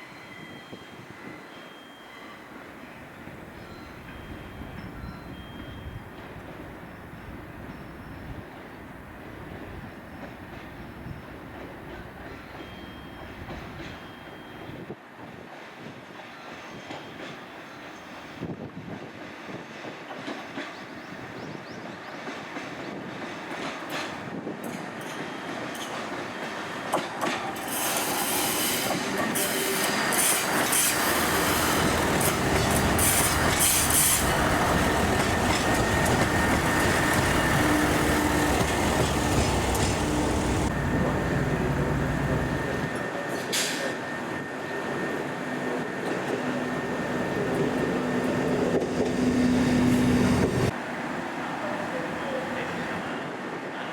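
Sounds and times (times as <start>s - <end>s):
faint high squeal: 0.0s - 3.0s
train wheels on rails: 2.6s - 53.9s
diesel train engine hum: 27.7s - 53.9s.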